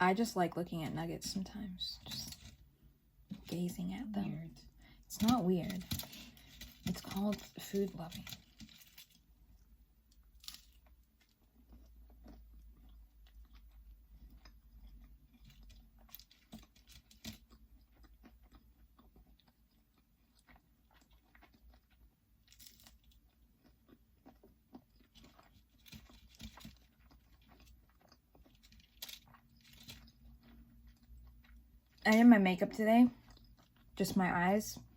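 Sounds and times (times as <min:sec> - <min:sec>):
person chewing food: 0:05.8 - 0:32.1, 0:33.1 - 0:34.0.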